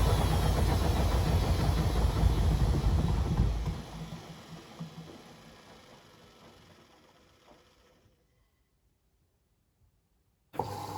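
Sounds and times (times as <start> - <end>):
washing machine winding down: 0.0 - 7.8, 10.6 - 10.9.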